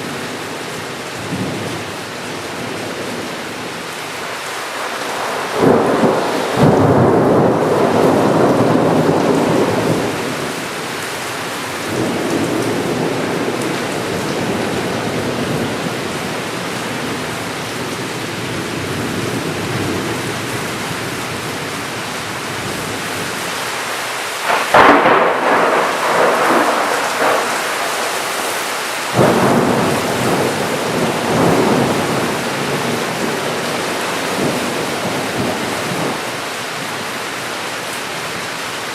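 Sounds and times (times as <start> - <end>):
heavy rain: 0.0 - 38.9
thunder rumbling: 4.8 - 17.4, 24.4 - 36.9
close thunder crack: 5.4 - 10.5, 24.4 - 36.4.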